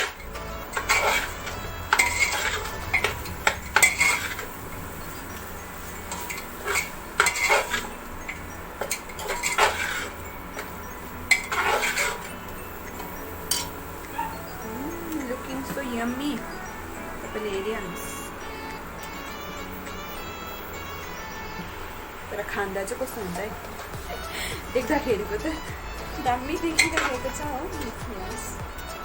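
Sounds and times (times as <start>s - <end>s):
spoon scraping a cooking pot: 0.0s - 15.8s.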